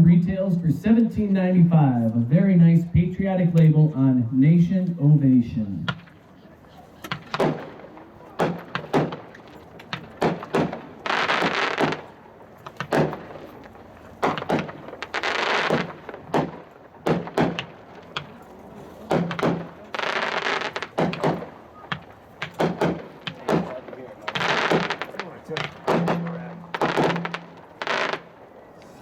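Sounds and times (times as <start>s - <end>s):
fireworks bangs: 7.0s - 28.8s
noisy fireworks burst: 7.0s - 28.8s.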